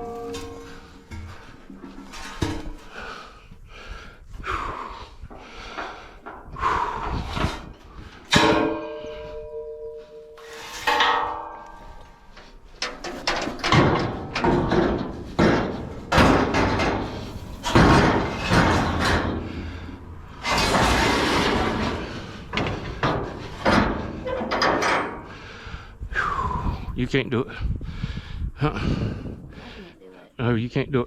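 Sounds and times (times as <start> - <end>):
scrap metal clanks and scrapes: 0.0 - 3.3, 5.6 - 25.8.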